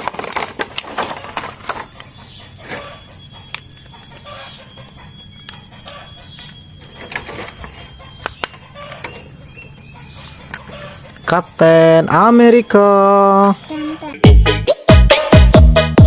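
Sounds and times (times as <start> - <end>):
hens clucking: 0.6 - 12.8.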